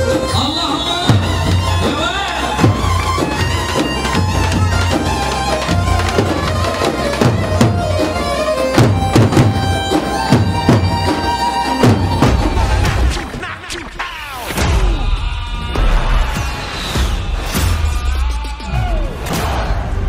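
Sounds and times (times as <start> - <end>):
reedy wind instrument melody: 0.0 - 13.3
drum beats: 0.0 - 19.9.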